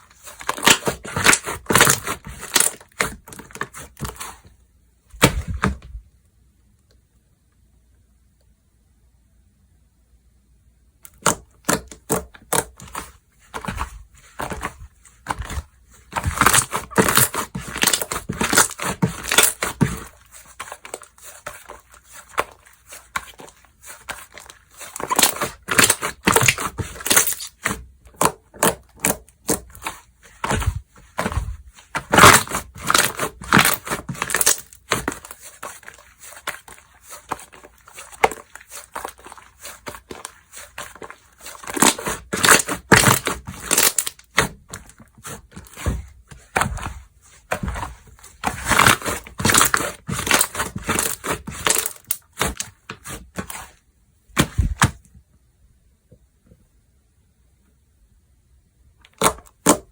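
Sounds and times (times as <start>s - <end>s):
slime squished by hand: 11.1s - 53.7s.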